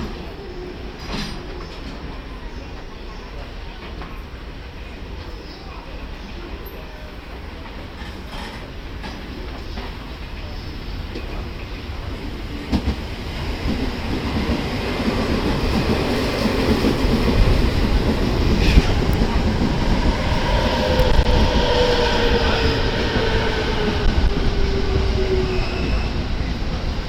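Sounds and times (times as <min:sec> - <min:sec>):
train wheels clattering on rails: 0:07.6 - 0:10.1, 0:12.6 - 0:26.8.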